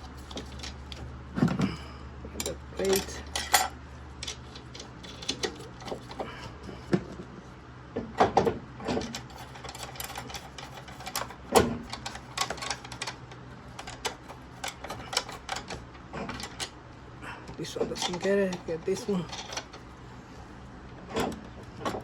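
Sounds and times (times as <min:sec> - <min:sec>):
metal tools clicking and knocking: 0:00.0 - 0:06.5, 0:08.9 - 0:16.8, 0:17.7 - 0:20.0
low steady hum: 0:00.0 - 0:22.0.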